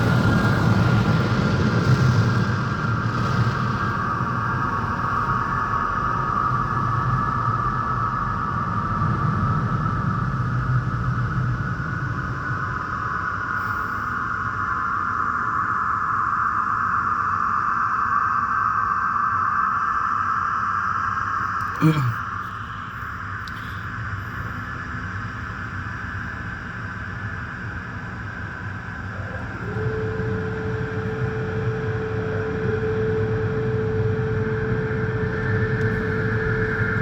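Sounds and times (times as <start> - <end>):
car wash machinery running: 28.0 - 37.0.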